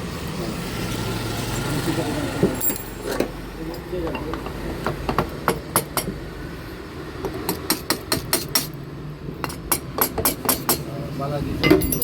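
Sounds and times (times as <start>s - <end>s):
hand tools clinking on metal: 2.6s - 4.6s, 11.6s - 12.0s.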